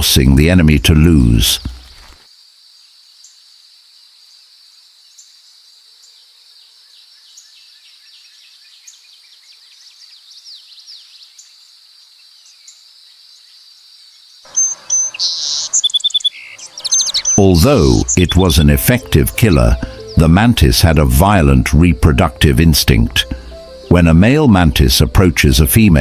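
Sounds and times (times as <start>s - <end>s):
chirping calls: 14.4s - 26.0s.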